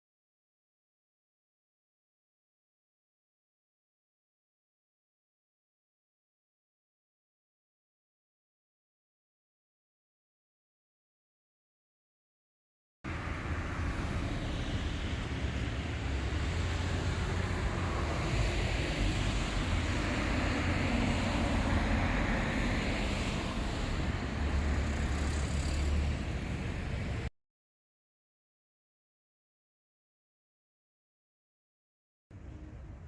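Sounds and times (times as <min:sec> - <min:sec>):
road traffic rumble: 0:13.1 - 0:27.3, 0:32.3 - 0:33.0.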